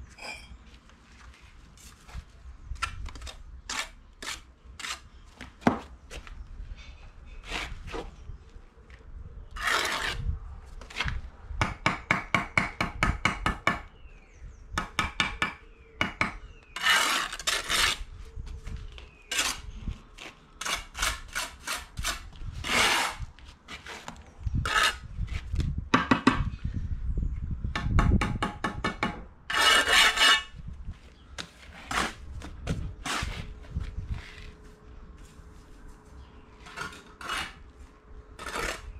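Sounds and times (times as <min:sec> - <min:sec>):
trowel scraping mortar: 0:03.7 - 0:05.1, 0:09.6 - 0:11.1, 0:16.8 - 0:18.1, 0:19.3 - 0:25.4, 0:29.5 - 0:30.6, 0:33.0 - 0:34.5, 0:36.6 - 0:37.7, 0:38.4 - 0:38.9.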